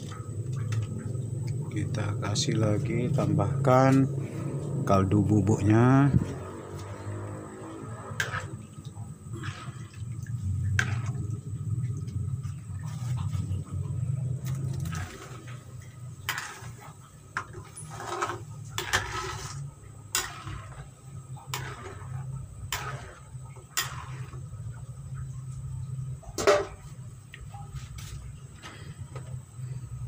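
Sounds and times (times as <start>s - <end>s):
steady low rumble: 0.0s - 17.6s.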